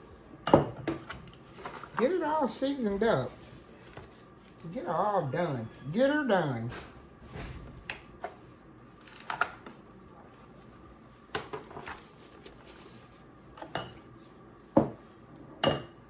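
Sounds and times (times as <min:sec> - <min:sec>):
dishes and pans clinking: 0:13.6 - 0:14.1, 0:15.6 - 0:16.0.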